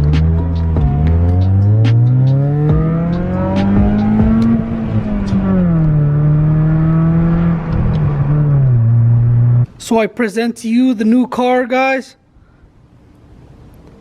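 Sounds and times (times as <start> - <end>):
car engine accelerating: 0.0 - 9.7.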